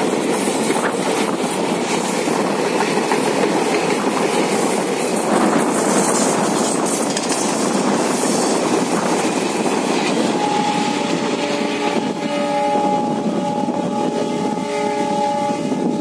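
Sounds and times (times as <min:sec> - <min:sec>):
wheels clattering over rail joints: 0:02.6 - 0:10.4
multi-tone train horn: 0:10.2 - 0:16.0.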